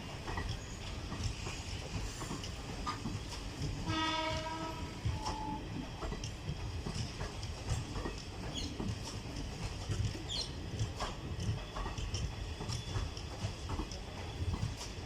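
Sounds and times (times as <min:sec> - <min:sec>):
train rumbling on track: 0:00.0 - 0:15.0
locomotive horn blast: 0:03.9 - 0:05.5.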